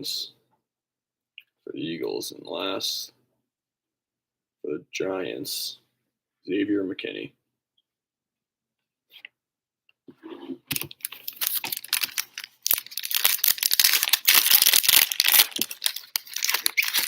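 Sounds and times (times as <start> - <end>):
foil wrapper tearing and crinkling: 10.7 - 17.0.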